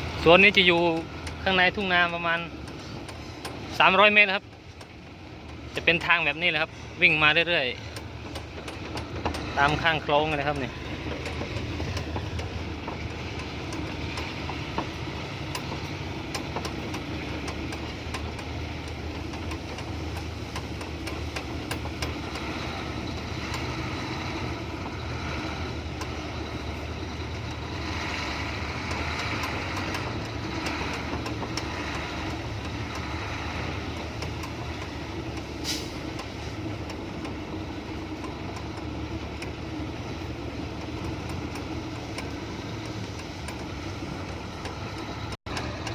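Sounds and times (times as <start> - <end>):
diesel truck engine running: 0.0 - 45.9.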